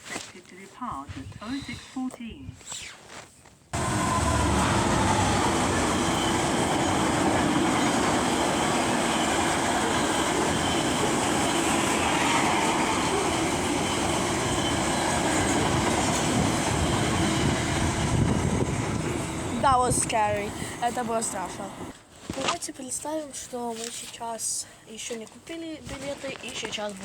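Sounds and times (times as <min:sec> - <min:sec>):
train wheels on rails rushing: 0:03.8 - 0:22.0.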